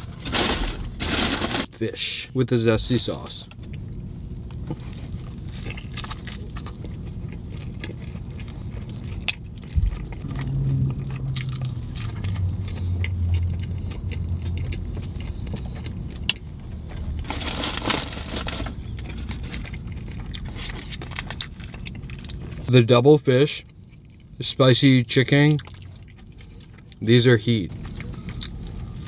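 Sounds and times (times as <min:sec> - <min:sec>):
low hum: 0:00.0 - 0:22.7
low steady rumble: 0:00.0 - 0:29.0
chewing and biting sandwich: 0:03.7 - 0:22.7, 0:23.6 - 0:24.4, 0:25.5 - 0:27.1, 0:27.7 - 0:29.0.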